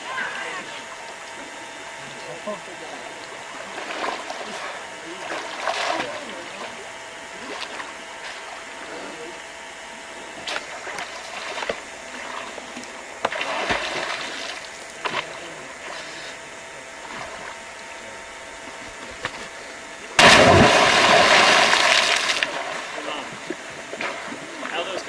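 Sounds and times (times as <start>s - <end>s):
water splashing and sloshing: 3.1s - 8.8s, 10.3s - 17.9s, 18.6s - 25.0s
loud splash: 20.2s - 23.1s.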